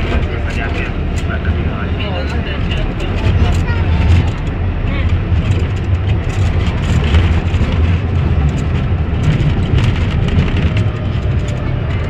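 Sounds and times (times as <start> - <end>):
tram rumbling along track: 0.0 - 12.0
clicks and rattles: 3.0 - 12.0.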